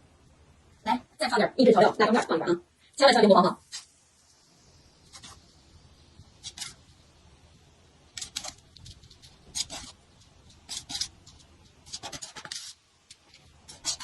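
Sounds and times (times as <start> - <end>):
utensils scraping and clicking: 6.4 - 6.8, 8.1 - 14.0.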